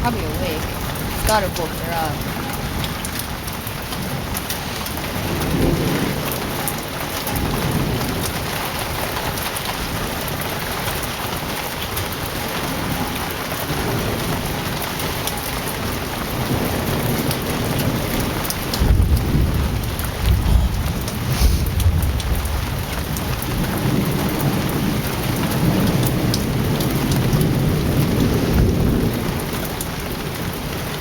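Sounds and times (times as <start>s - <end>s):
heavy rain pouring: 0.0s - 31.0s
thunder rumbling: 16.3s - 30.4s.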